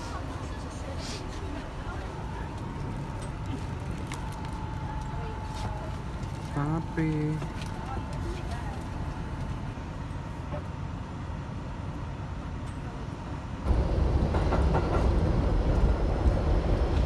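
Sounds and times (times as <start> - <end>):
subway train rumbling: 0.0 - 17.0
train rattling: 13.7 - 17.0.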